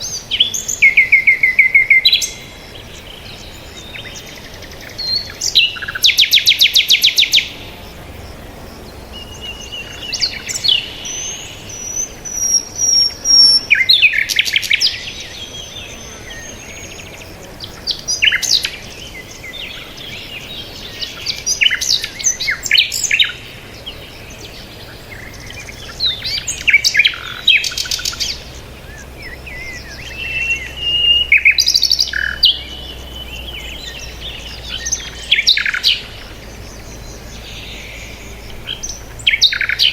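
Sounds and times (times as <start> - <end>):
bird trill: 0.0 - 39.9
birds chirping and singing: 0.0 - 39.9.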